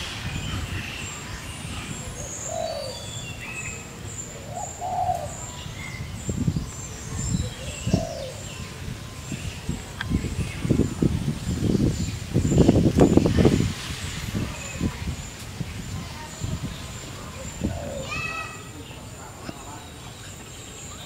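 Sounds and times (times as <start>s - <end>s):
lower bird call: 0.0s - 13.3s
birds chirping and whistling: 0.0s - 21.0s.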